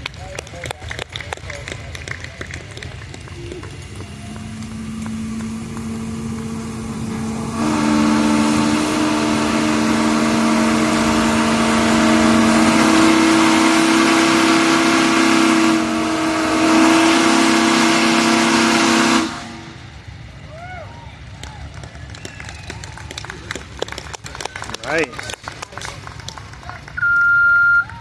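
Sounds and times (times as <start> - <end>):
rush of steam: 1.6 - 21.3
steam whistle blowing: 4.3 - 19.8.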